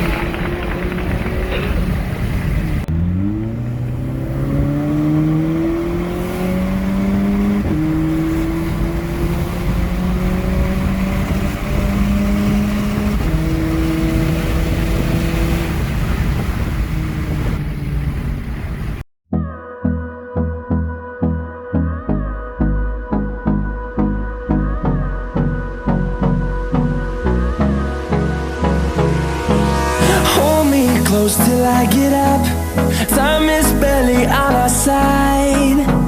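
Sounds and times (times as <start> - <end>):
turbocharged car engine accelerating: 0.0 - 19.0, 26.2 - 36.0.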